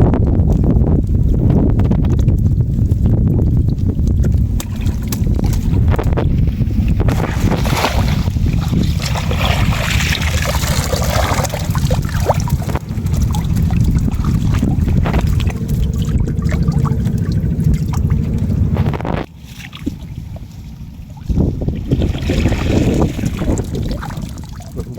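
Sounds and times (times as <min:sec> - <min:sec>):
wind buffeting microphone: 0:00.0 - 0:24.9
water splashing and trickling: 0:00.4 - 0:24.9
water drips: 0:02.1 - 0:06.2, 0:08.8 - 0:19.0.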